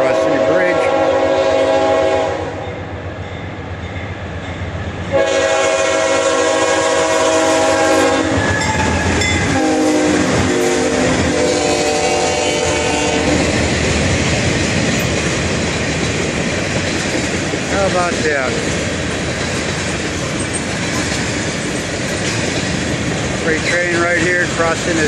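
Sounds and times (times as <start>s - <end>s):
train horn blasts: 0.0s - 2.8s, 5.1s - 13.6s
freight train rumbling: 0.0s - 25.0s.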